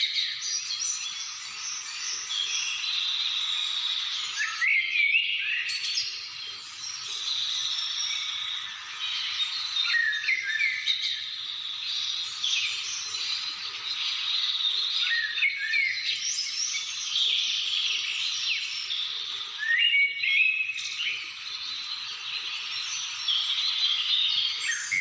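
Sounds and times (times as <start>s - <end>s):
chorus of birds singing: 0.0s - 25.0s
bird whistled phrases: 19.6s - 20.9s, 24.0s - 25.0s.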